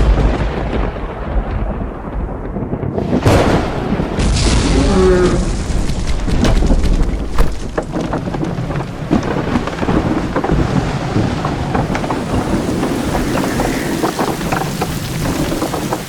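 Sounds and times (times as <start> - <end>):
rain falling: 5.0 - 16.0.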